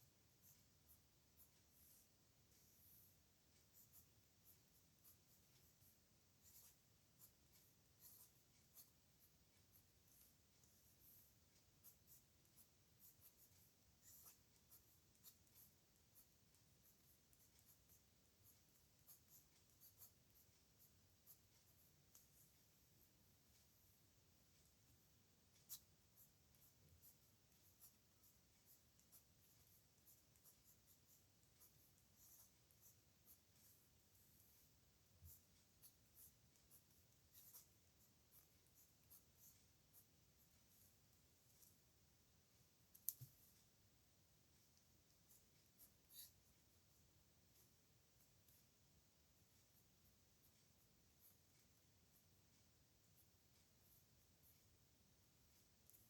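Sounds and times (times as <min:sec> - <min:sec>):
pen scratching on paper: 0:00.4 - 0:23.1, 0:25.0 - 0:41.0, 0:45.2 - 0:46.4.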